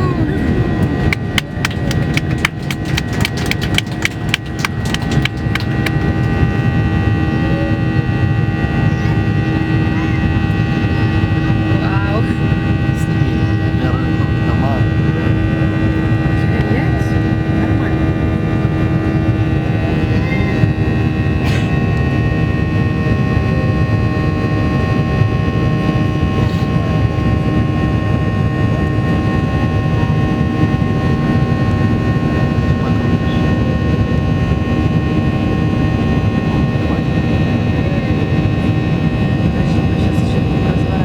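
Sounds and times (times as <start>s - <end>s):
jet engine whining tones: 0.0s - 41.0s
jet engines rumbling: 0.0s - 41.0s.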